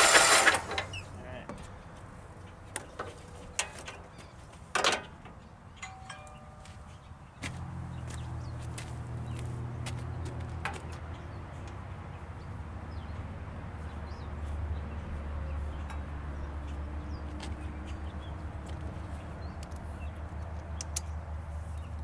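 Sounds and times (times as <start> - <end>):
sharp clicks: 20.4 - 21.2.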